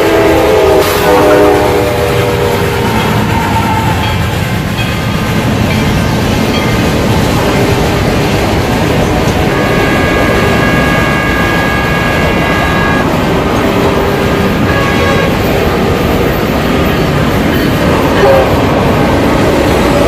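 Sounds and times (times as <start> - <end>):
train horn: 0.0 - 4.3, 7.3 - 8.4, 9.3 - 16.6, 17.9 - 18.9
trains rumbling: 0.0 - 20.0.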